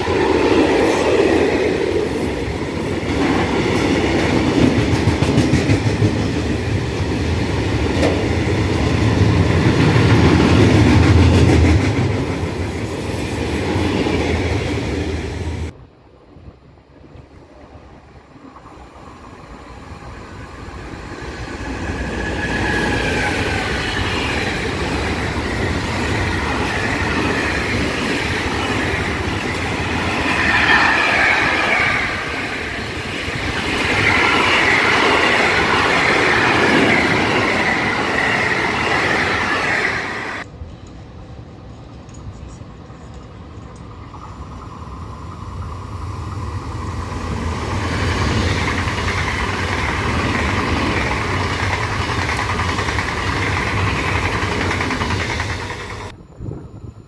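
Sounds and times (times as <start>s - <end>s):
freight train wheels clattering: 0.0s - 12.6s
approaching train rumble: 0.0s - 57.0s.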